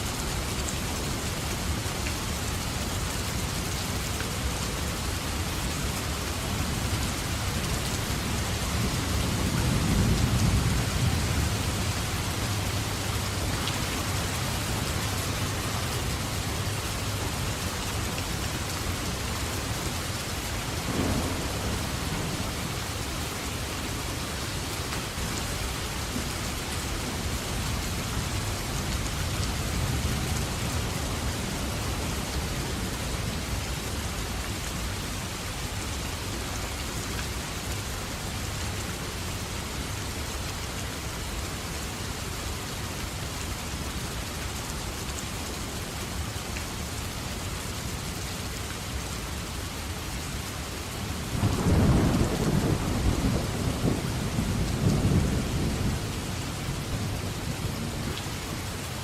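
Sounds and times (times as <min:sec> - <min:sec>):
heavy rain falling: 0:00.0 - 0:59.0
distant thunder rumbling: 0:20.8 - 0:22.9, 0:51.4 - 0:58.0.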